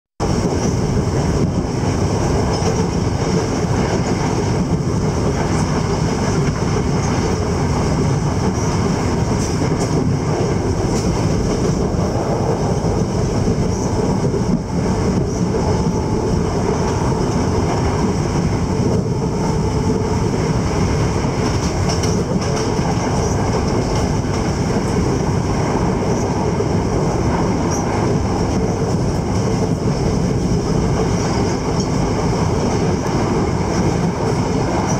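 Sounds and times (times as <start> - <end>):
faint rail clacks: 0.2 - 25.2
train wheels rumbling on rails: 0.2 - 34.9.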